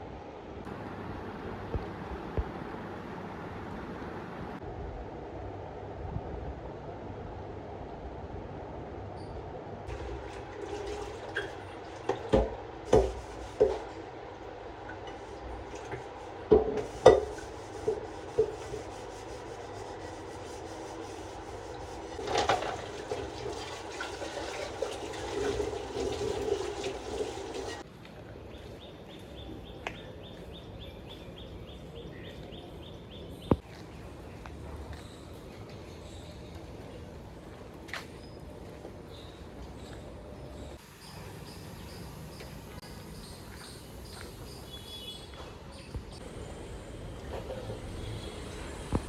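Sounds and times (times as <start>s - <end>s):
water running: 9.9s - 27.8s
pots and dishes clinking: 15.8s - 18.5s, 22.2s - 27.8s.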